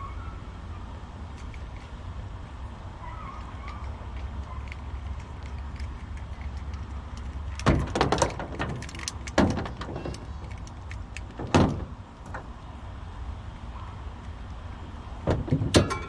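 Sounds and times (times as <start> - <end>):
sharp knocks and clatters: 4.7 - 12.5, 15.2 - 16.0.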